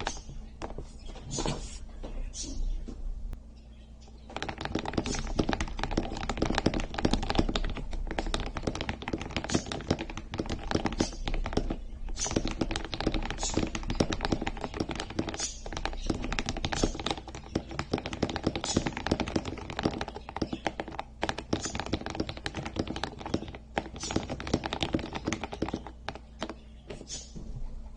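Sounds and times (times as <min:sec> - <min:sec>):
fast typing on mechanical keyboard: 0:04.3 - 0:26.6.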